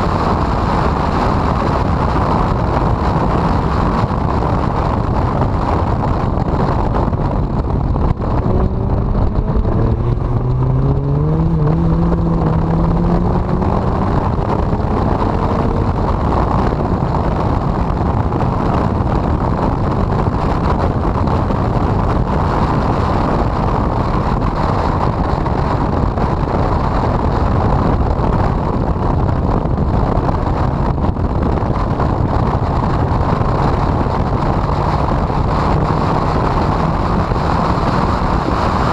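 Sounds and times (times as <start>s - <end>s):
car engine running hard: 0.0s - 38.9s
wind buffeting microphone: 0.0s - 38.9s.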